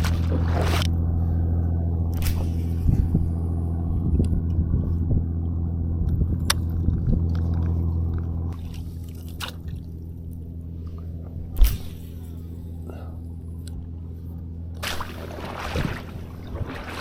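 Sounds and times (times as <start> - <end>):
water sloshing: 0.0 - 1.0, 7.4 - 12.5, 14.8 - 17.0
jet ski engine idling: 0.0 - 17.0.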